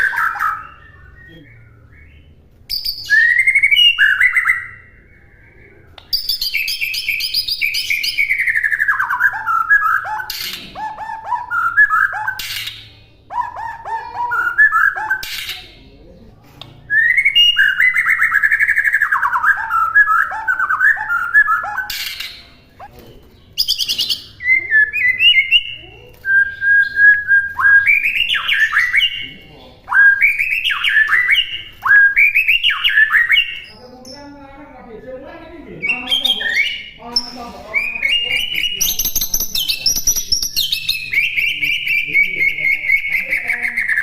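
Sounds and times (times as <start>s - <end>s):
bird singing varied whistles: 0.0s - 10.5s, 16.9s - 22.4s, 29.9s - 33.8s.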